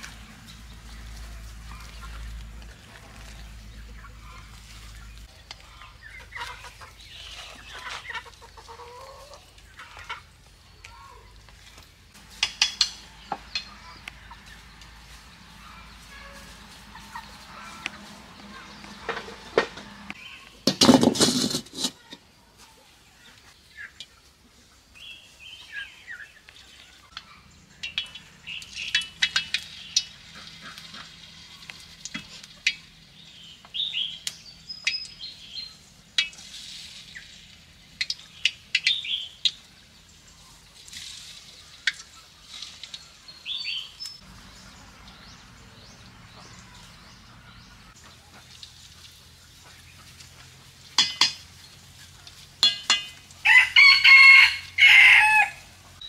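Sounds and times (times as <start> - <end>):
small birds chirping: 0.0 - 20.7, 22.0 - 53.5
utensils clinking: 51.0 - 51.5, 52.6 - 53.3.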